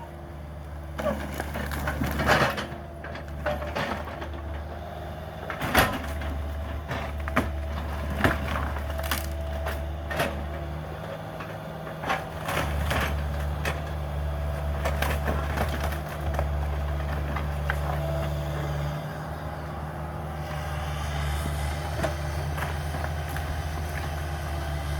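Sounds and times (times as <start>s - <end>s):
diesel excavator engine running: 0.0s - 24.9s
timber cracking and splintering: 8.1s - 9.9s.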